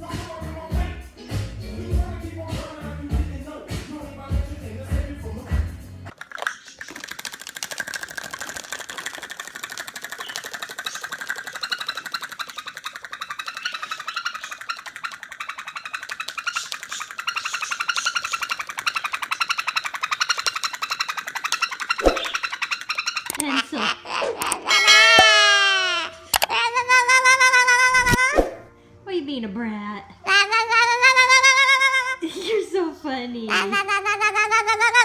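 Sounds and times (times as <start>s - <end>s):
pet bird trilling chatter: 10.1s - 25.4s.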